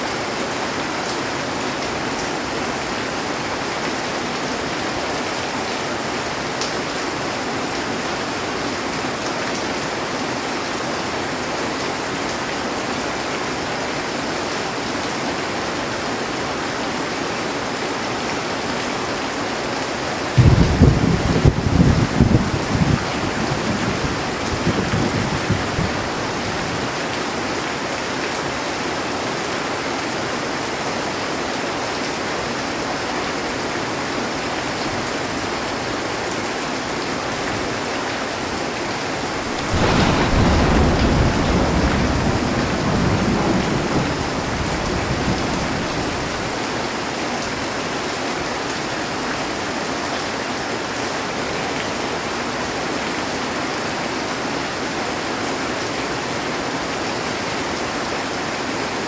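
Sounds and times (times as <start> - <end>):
heavy rain on a metal roof: 0.0 - 59.0
thunderclap and rumble: 20.4 - 26.9, 39.4 - 46.6.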